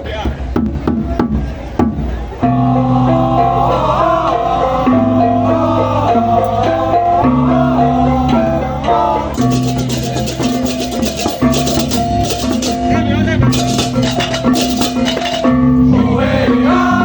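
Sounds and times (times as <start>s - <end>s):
fast shaker rhythm: 9.4s - 15.6s
plucked string melody: 9.4s - 16.0s.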